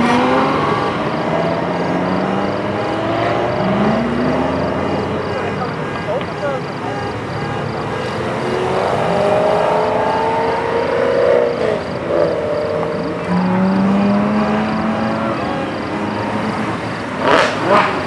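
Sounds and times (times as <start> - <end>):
sports car engine accelerating: 0.0 - 18.0.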